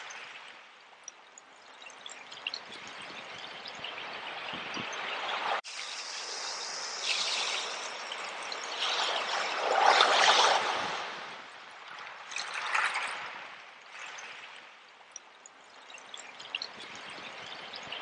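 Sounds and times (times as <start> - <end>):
ocean waves washing in: 2.9 - 14.7.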